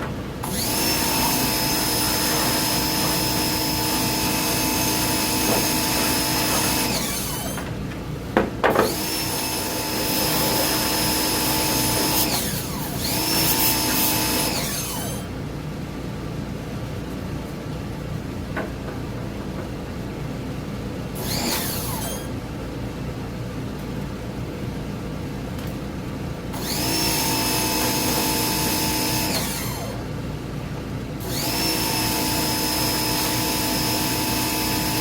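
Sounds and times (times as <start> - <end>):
power tool motor spinning: 0.4 - 7.6, 8.8 - 15.3, 21.2 - 22.3, 26.6 - 30.0, 31.2 - 35.0.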